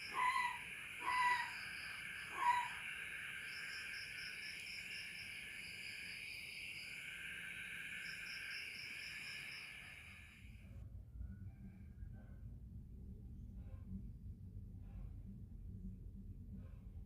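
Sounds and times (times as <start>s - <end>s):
owl hooting: 0.0s - 4.0s
crickets and insects chirping: 0.0s - 10.6s.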